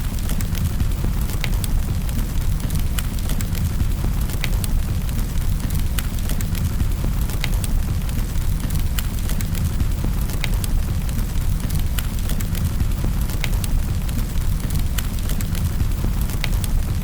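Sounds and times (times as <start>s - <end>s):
fire crackling and popping: 0.0s - 17.0s
fire rumbling: 0.1s - 17.0s.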